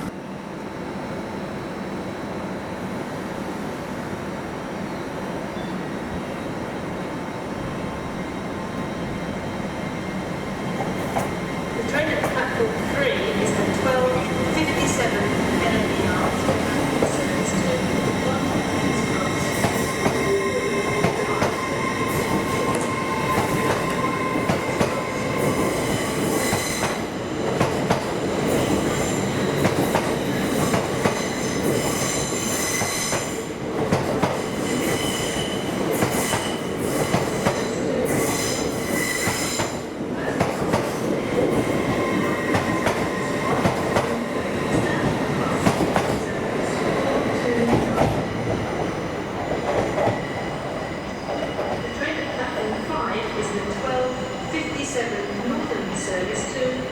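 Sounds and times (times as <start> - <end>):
train wheels squealing on rails: 13.1 - 27.2, 28.4 - 33.6, 34.2 - 40.4, 41.3 - 56.9.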